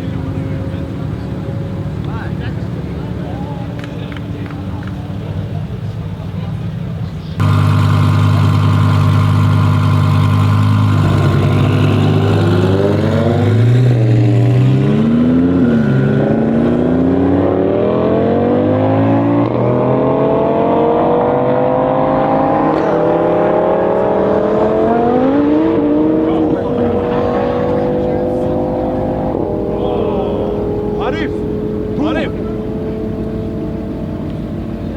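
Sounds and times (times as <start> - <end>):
car engine revving through gears: 7.4 - 34.7.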